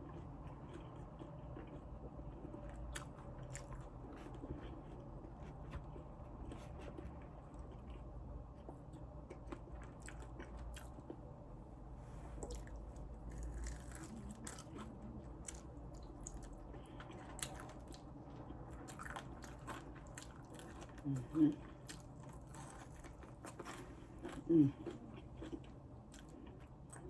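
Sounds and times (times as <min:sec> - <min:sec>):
crunchy chicken being chewed: 0:00.0 - 0:11.3, 0:12.4 - 0:27.0.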